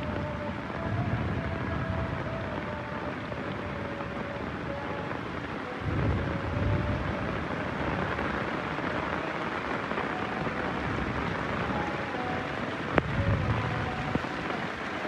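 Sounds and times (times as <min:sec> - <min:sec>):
low rumble of thunder: 0:00.0 - 0:04.7, 0:05.8 - 0:08.4, 0:12.9 - 0:14.5
heavy rain falling: 0:00.0 - 0:15.0.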